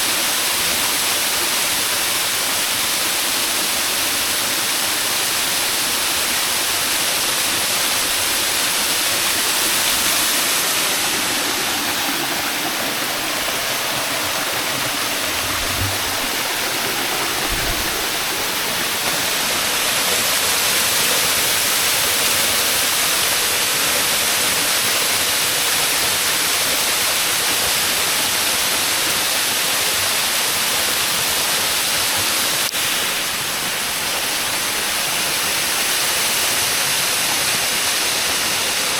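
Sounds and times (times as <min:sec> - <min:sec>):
waterfall rushing: 0:00.0 - 0:38.9
low thumps: 0:13.4 - 0:19.1.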